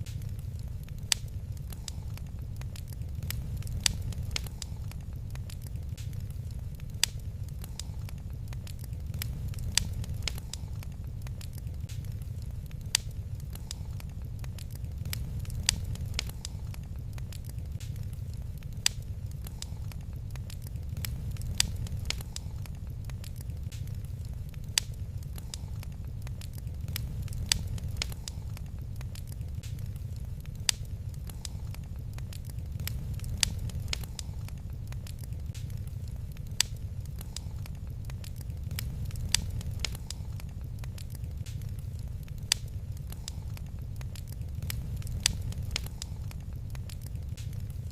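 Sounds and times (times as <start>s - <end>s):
low rumble: 0.0s - 47.9s
wood fire crackling and popping: 0.0s - 47.9s.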